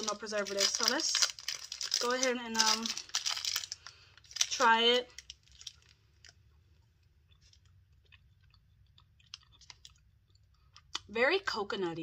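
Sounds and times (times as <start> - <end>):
chewing with mouth clicks: 7.2 - 11.1.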